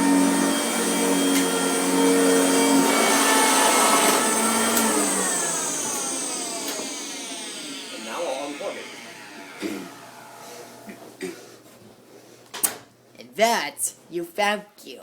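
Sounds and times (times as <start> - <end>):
motor whine spinning down: 0.0 - 10.9
vacuum cleaner motor running: 0.0 - 10.9.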